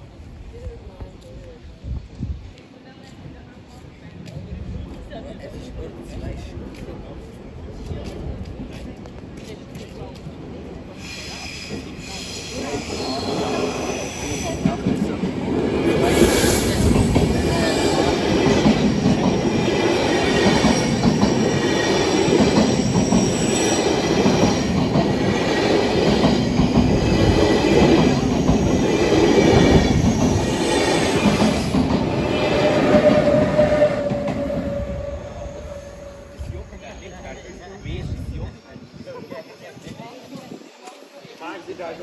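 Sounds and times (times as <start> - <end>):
train wheels rumbling on rails: 0.1 - 42.0
high wheel squeal: 11.0 - 14.8, 16.1 - 38.4.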